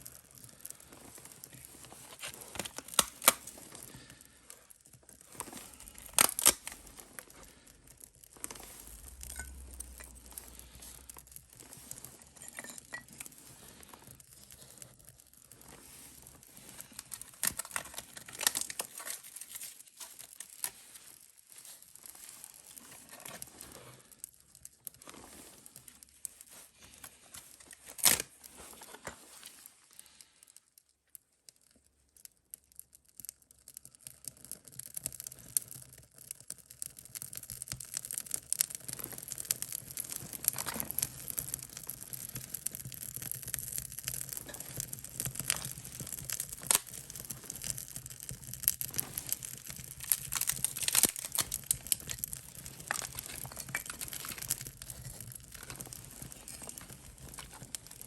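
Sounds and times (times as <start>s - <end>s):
dry tinder rustling and snapping: 0.6s - 4.2s, 5.3s - 14.0s, 15.6s - 29.7s, 38.6s - 58.0s.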